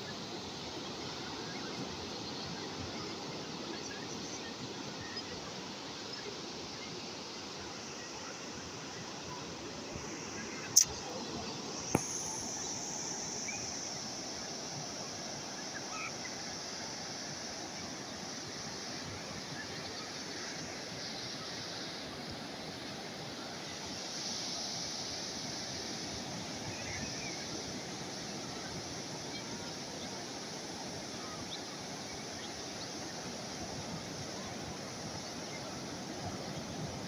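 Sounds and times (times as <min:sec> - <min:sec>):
sharp click: 0:11.9 - 0:12.4.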